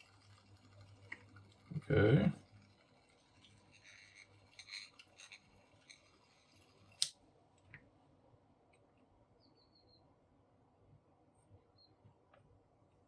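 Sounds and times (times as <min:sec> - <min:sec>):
faint high chirps: 0:09.4 - 0:10.1.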